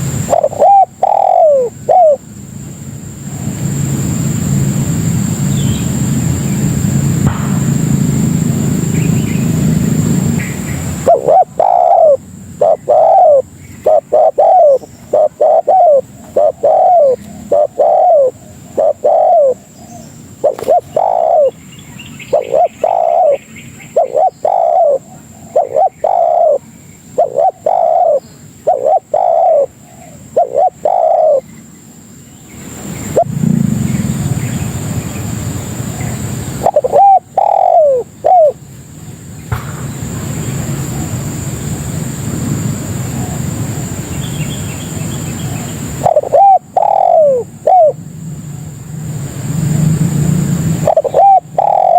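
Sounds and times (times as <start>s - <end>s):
dove cooing: 0.0s - 2.3s, 7.7s - 21.6s, 22.2s - 31.5s, 33.0s - 34.7s, 35.8s - 38.6s, 42.7s - 44.3s, 44.9s - 48.1s, 50.7s - 51.9s
low background rumble: 1.6s - 30.8s.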